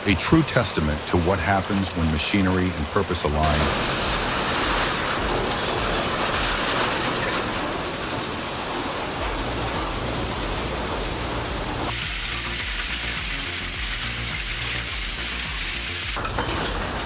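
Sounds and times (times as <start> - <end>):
background music bass line: 3.4 - 7.6, 8.7 - 17.0
industrial shredder grinding: 3.6 - 17.0.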